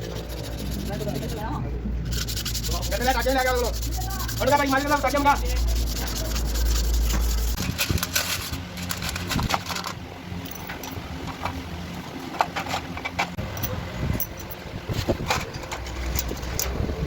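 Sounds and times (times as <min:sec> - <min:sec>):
rubbing and scraping strokes: 0:00.0 - 0:09.9
low hum: 0:00.0 - 0:17.0.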